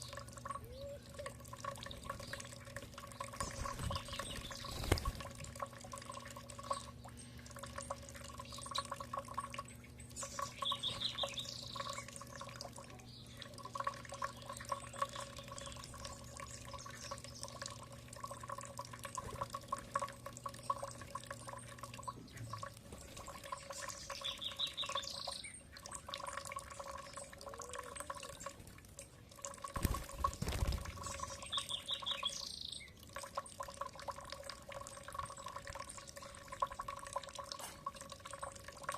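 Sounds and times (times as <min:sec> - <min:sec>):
songbird trilling: 0:00.0 - 0:02.5, 0:10.1 - 0:12.2, 0:23.6 - 0:25.7, 0:30.9 - 0:32.9
dripping trickling water: 0:00.0 - 0:38.9.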